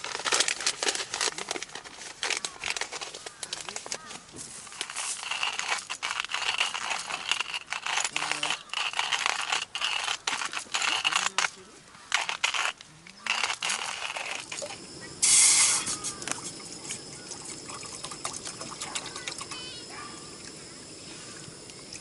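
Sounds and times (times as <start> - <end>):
liquid pouring: 14.2 - 19.6
faint steady hiss: 14.2 - 22.0.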